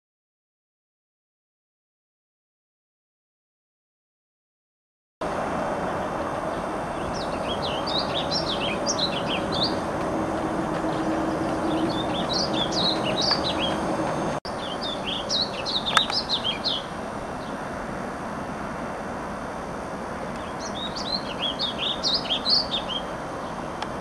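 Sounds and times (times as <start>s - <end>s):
steady background noise: 5.2s - 24.0s
bird singing warbled song: 5.8s - 17.6s, 20.4s - 23.7s.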